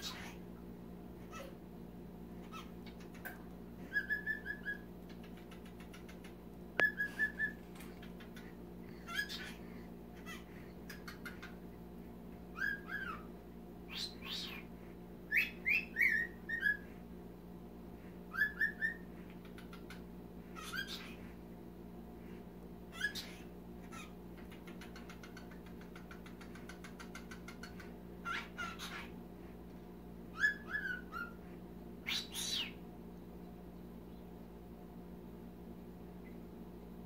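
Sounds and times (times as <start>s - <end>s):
cockatiel whistling and chirping: 3.9s - 4.8s, 6.8s - 7.6s, 12.6s - 13.3s, 13.9s - 14.6s, 15.3s - 16.8s, 18.3s - 19.0s, 20.6s - 21.2s, 30.3s - 31.4s, 32.0s - 32.8s.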